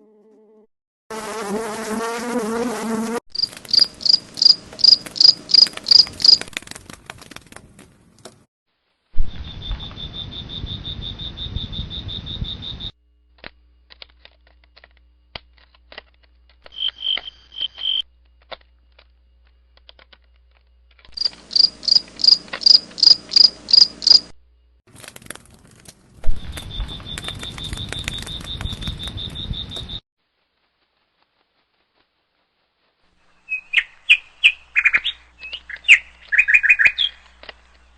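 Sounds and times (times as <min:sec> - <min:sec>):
insect chirping trill: 0:03.3 - 0:06.5, 0:09.2 - 0:13.0, 0:16.7 - 0:18.1, 0:21.1 - 0:24.3, 0:26.4 - 0:30.0.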